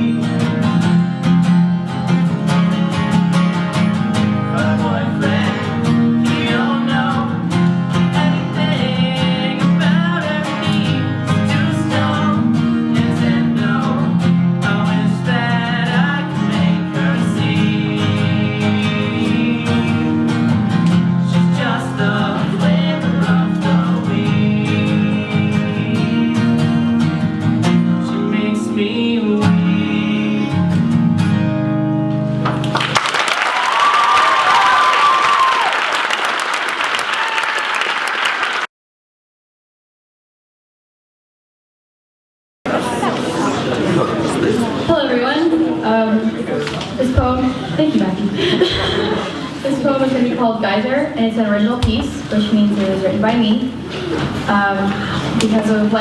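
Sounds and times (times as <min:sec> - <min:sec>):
live guitar music: 0:00.0 - 0:33.1, 0:42.7 - 0:56.0.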